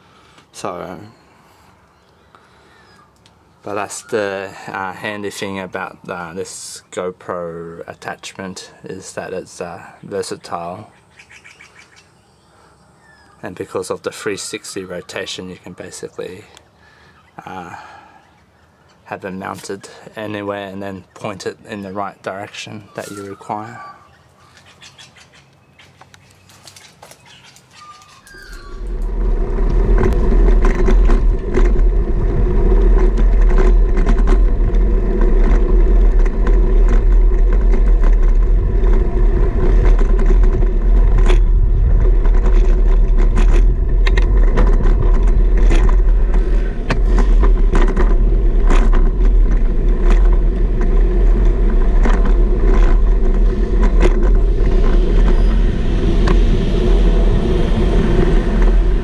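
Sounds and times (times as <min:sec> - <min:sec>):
wind and road rumble: 0:00.0 - 0:59.0
bike clicks and rattles: 0:25.4 - 0:56.4.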